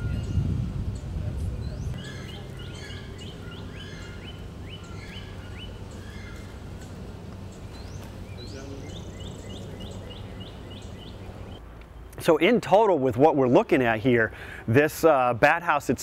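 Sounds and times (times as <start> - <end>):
steady low hum: 0.0 - 12.2
small birds chirping: 0.0 - 12.3.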